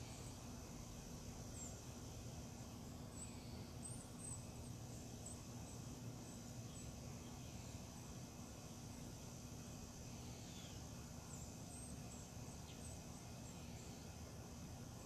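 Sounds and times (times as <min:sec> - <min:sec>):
faint bird chirps: 0:00.0 - 0:00.6, 0:01.5 - 0:08.1, 0:10.0 - 0:14.2.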